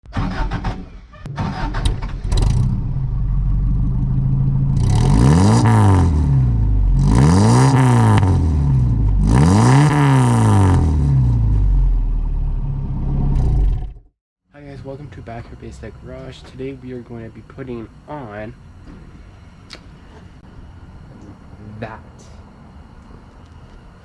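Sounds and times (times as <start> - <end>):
engine idling and revving: 1.6 - 14.1.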